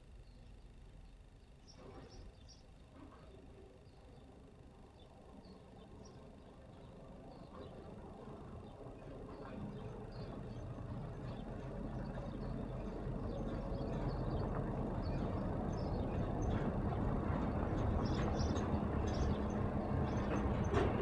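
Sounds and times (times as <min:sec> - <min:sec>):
passing vehicle rumble: 0:07.5 - 0:21.0.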